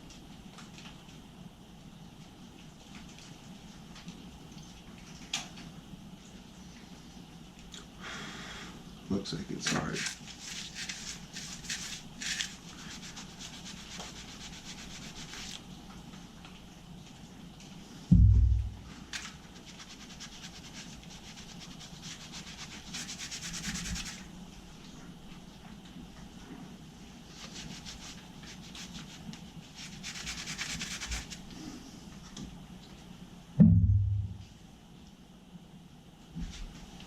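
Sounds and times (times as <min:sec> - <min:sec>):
scrubbing on metal tank: 0:09.6 - 0:15.6, 0:19.0 - 0:24.2, 0:27.3 - 0:31.5
loud thump: 0:18.1 - 0:18.9, 0:33.6 - 0:34.4.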